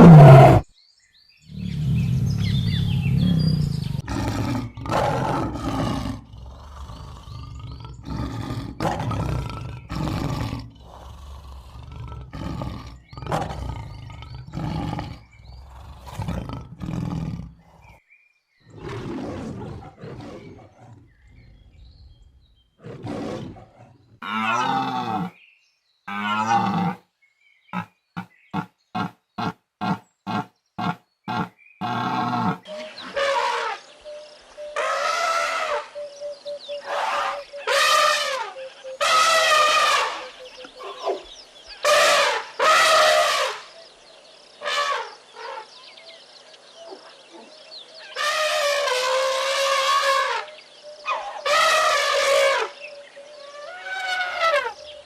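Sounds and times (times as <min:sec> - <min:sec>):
big cat grunting: 0:00.0 - 0:00.7, 0:01.5 - 0:18.0, 0:18.7 - 0:25.4, 0:27.7 - 0:33.4
big cat roaring: 0:00.0 - 0:00.7, 0:01.5 - 0:18.0, 0:18.7 - 0:25.4, 0:26.1 - 0:27.0, 0:27.8 - 0:33.8.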